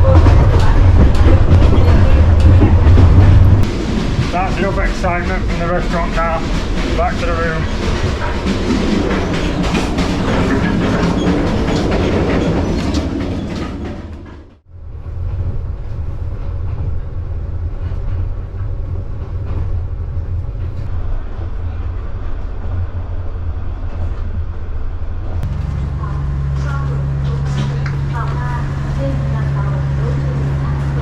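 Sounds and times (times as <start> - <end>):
wheels clicking over rails: 0.0 - 14.6, 25.4 - 31.0
low train rumble: 0.0 - 31.0
train carriage rattling: 0.0 - 31.0.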